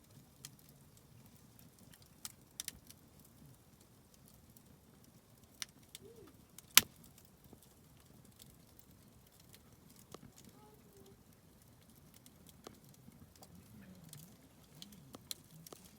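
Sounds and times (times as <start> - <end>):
campfire crackling: 0.0 - 15.9
sharp fire pops: 5.6 - 7.7.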